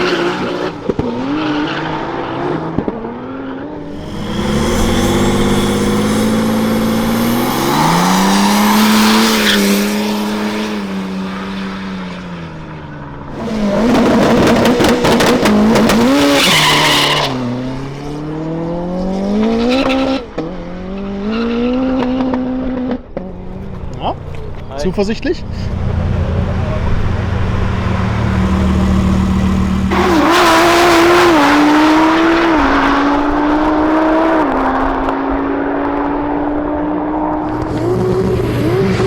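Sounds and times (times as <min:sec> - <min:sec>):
drag car engine revving: 0:00.0 - 0:12.0, 0:13.3 - 0:39.0
tyre squeal: 0:03.8 - 0:11.2, 0:13.4 - 0:17.7, 0:27.0 - 0:32.4.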